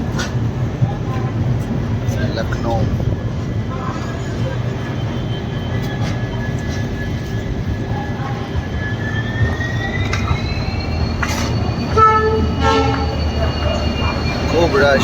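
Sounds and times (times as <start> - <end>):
train rumbling: 0.0 - 15.0
thin high whine: 3.9 - 15.0.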